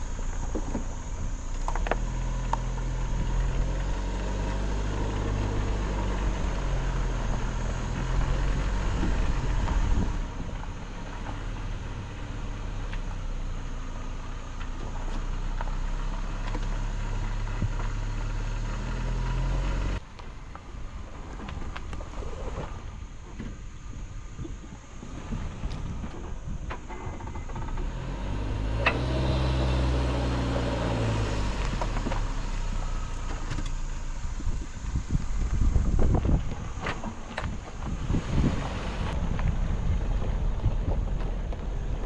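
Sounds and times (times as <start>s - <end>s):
wind-like noise: 0.0s - 13.6s, 20.0s - 28.1s, 31.2s - 42.0s
engine running with low hum: 0.0s - 42.0s.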